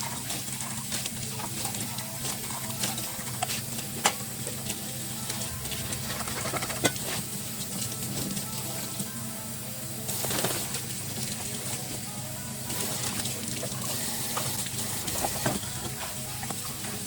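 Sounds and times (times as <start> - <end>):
dishes and utensils clinking: 0.0 - 9.0
low hum: 4.9 - 8.5.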